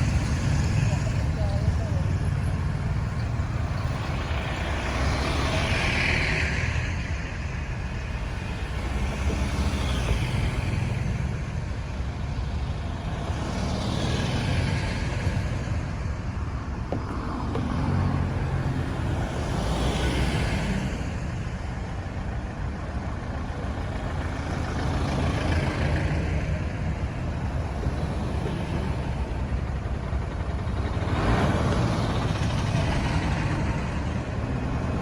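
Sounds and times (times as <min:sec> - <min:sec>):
low engine rumble: 0:00.0 - 0:05.8
vehicles passing: 0:00.0 - 0:35.0.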